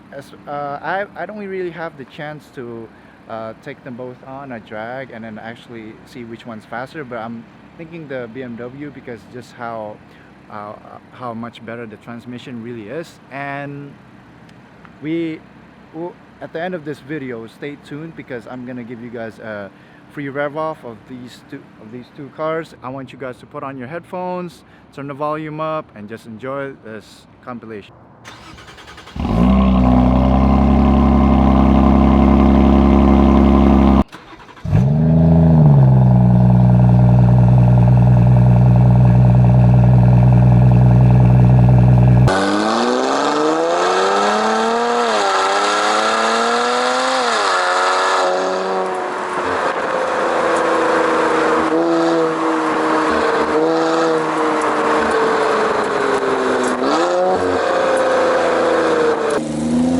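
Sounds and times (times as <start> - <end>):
car engine starting and idling: 28.2 - 44.5
car accelerating through gears: 28.3 - 59.9.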